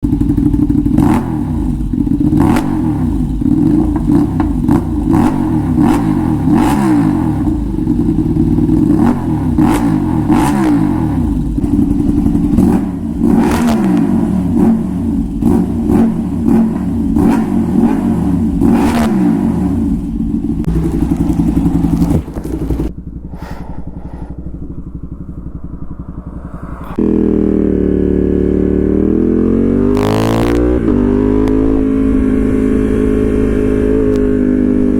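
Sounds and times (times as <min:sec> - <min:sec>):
motorcycle engine revving: 0:00.0 - 0:34.9
exhaust pops and crackles: 0:02.4 - 0:06.0, 0:20.6 - 0:23.3.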